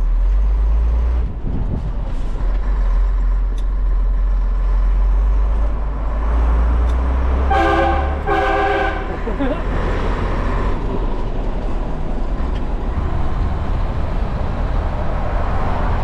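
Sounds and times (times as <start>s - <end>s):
diesel engine rumbling: 0.0s - 16.0s
multi-tone horn blast: 7.4s - 9.4s.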